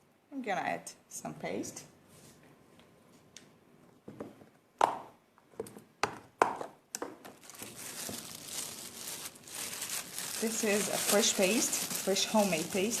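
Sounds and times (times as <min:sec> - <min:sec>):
knocks and taps on a table: 0:04.1 - 0:07.2
plastic wrap crinkling: 0:07.2 - 0:13.0.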